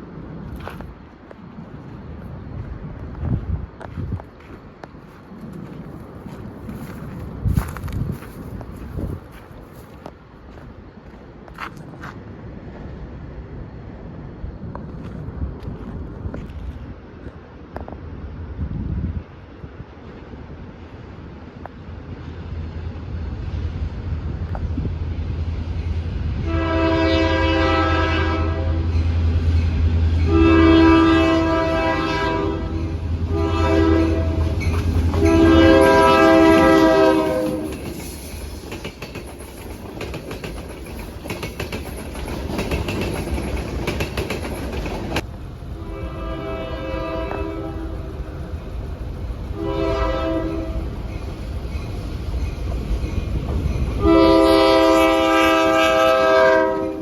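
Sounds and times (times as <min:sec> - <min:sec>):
locomotive engine drone: 0:00.0 - 0:38.6, 0:41.8 - 0:57.0
locomotive air horn: 0:26.4 - 0:28.9, 0:30.2 - 0:37.8, 0:45.8 - 0:48.1, 0:49.6 - 0:50.9, 0:54.0 - 0:57.0
wheels clicking over rail joints: 0:34.0 - 0:45.7.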